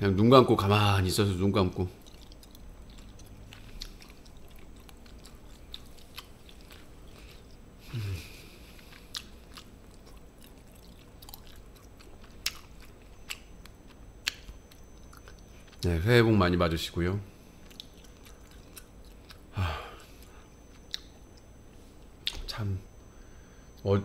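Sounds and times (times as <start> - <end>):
chewing and biting: 1.9 - 7.6, 8.2 - 15.9, 17.6 - 19.5
breathy vocal noise: 7.8 - 8.9, 19.5 - 20.4.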